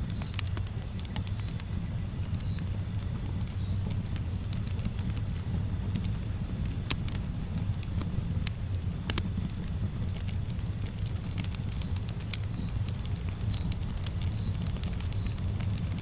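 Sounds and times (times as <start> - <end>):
burning wood crackling and popping: 0.0 - 16.0
campfire flames rumbling: 0.0 - 16.0
faint high chirp: 14.3 - 15.4.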